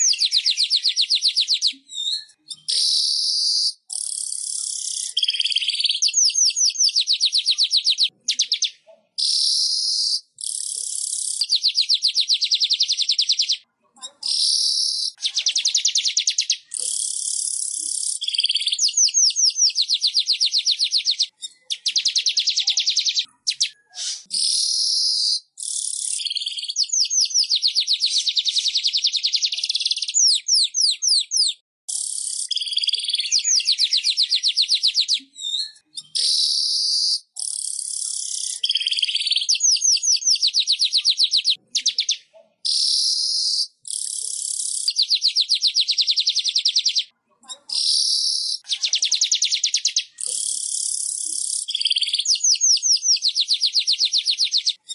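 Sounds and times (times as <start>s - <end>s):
weaver bird song: 0.0s - 54.9s.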